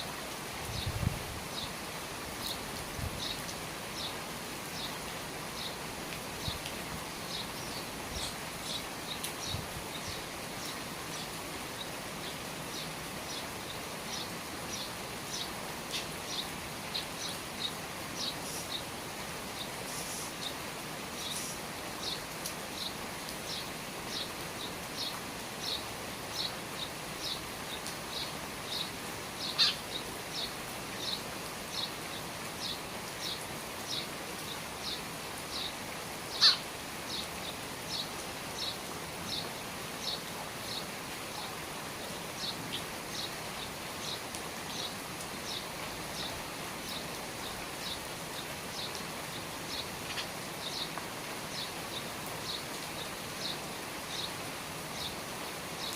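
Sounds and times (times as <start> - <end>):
rain pattering: 0.0 - 55.9
bird chirping: 36.3 - 37.2.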